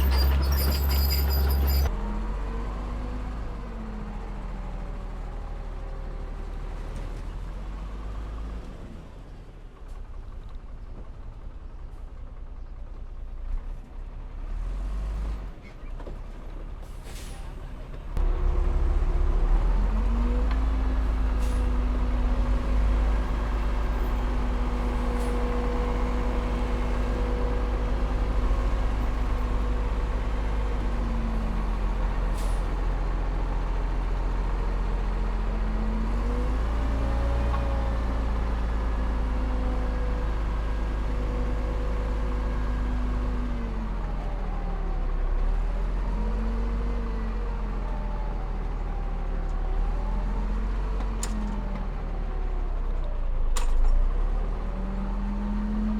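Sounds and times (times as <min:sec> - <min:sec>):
heavy diesel engine running: 0:00.0 - 0:06.6, 0:16.4 - 0:55.9.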